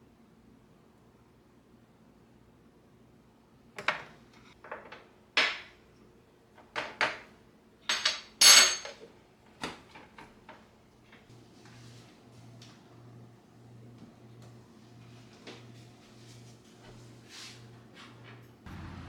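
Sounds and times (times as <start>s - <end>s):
dishes and utensils clinking: 7.9s - 9.0s.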